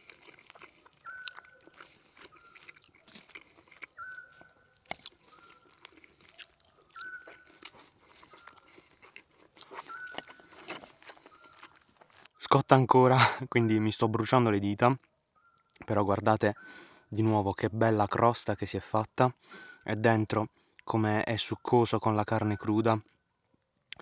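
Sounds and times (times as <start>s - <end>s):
crunching while chewing: 0.0s - 12.4s.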